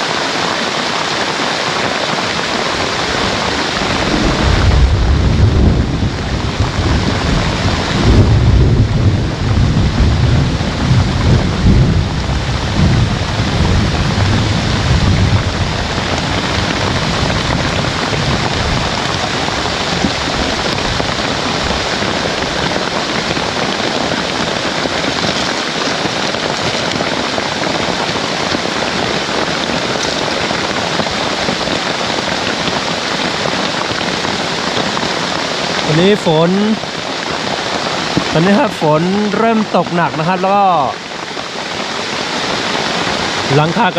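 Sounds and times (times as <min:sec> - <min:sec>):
heavy rain: 0:00.0 - 0:43.9
rolling thunder: 0:02.7 - 0:31.6.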